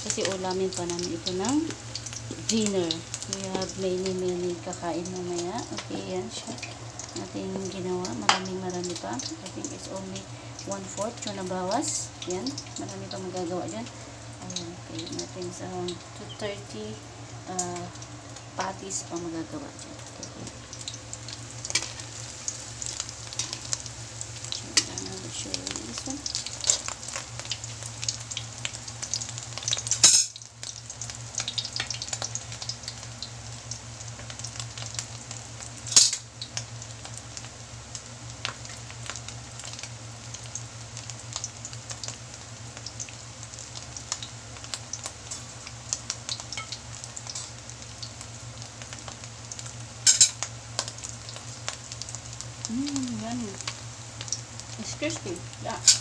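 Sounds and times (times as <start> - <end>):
food sizzling in hot oil: 0.0 - 56.0.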